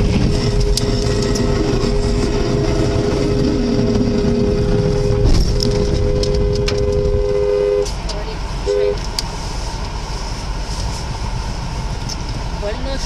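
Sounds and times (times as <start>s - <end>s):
traffic and road noise: 0.0s - 13.0s
car horn held down: 5.1s - 8.0s.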